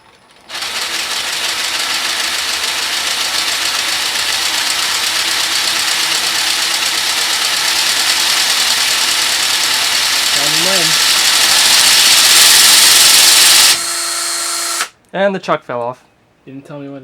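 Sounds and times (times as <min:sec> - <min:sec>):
plastic pistons clattering fast: 0:00.5 - 0:13.8
electric drill motor: 0:00.5 - 0:15.0.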